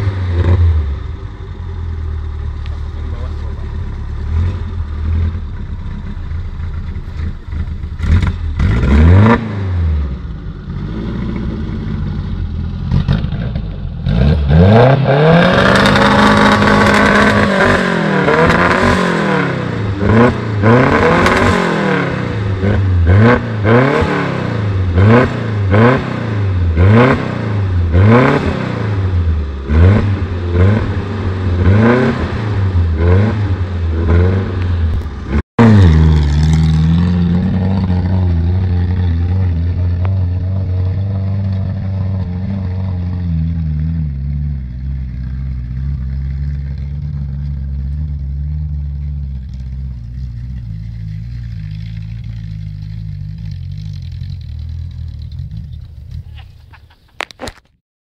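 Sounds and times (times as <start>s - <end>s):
car engine revving: 0.0s - 56.4s.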